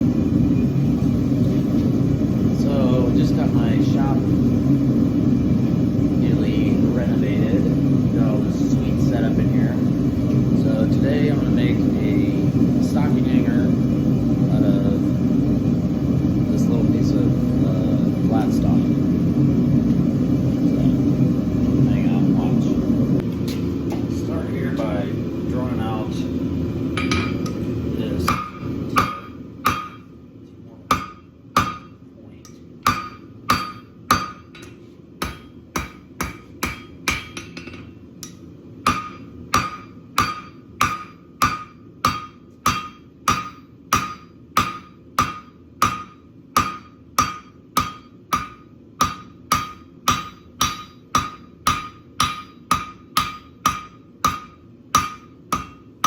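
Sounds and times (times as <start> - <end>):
hammer striking steel on anvil: 27.0 - 30.1, 30.9 - 56.0.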